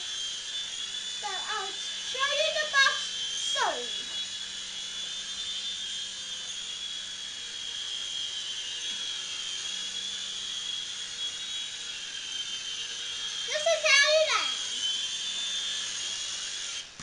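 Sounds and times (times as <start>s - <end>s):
toy helicopter motor whine: 0.0s - 17.0s.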